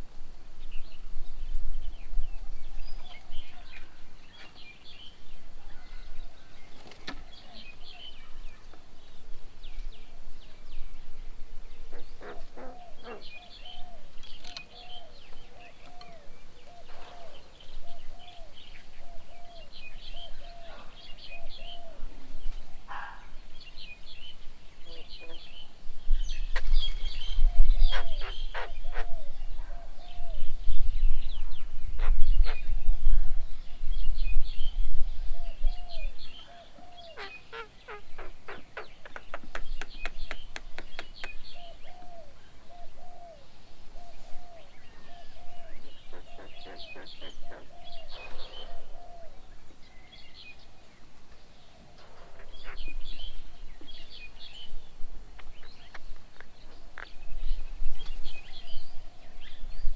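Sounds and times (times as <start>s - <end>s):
sharp clicking bird notes: 14.2s - 14.8s, 38.5s - 41.7s.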